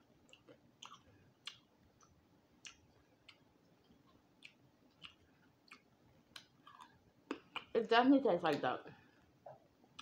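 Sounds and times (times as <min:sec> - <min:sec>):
crunching while chewing: 0:00.2 - 0:07.7.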